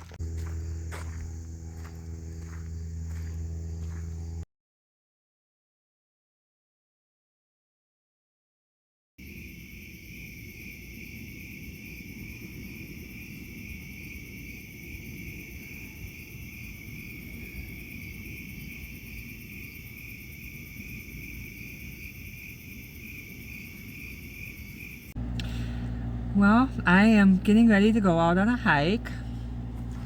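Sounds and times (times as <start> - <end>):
insects trilling: 0.0 - 4.4, 9.2 - 25.2.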